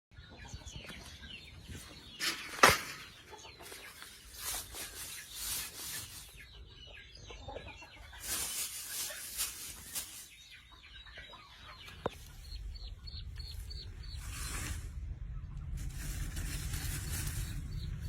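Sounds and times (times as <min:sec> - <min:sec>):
scratchy rustles: 0:02.2 - 0:06.4, 0:08.2 - 0:10.4, 0:13.5 - 0:15.0, 0:15.7 - 0:18.0
hen clucking softly: 0:06.3 - 0:08.4.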